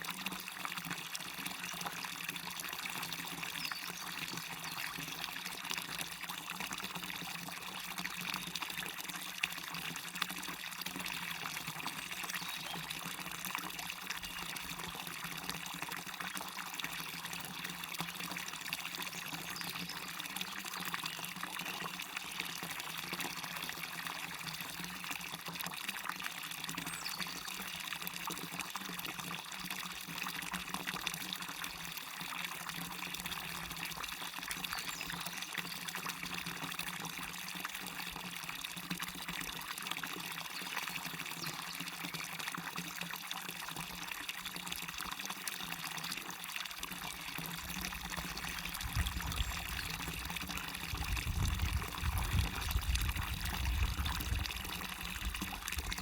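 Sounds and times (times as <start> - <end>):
small waterfall splashing: 0.0 - 56.0
river water running: 46.8 - 56.0.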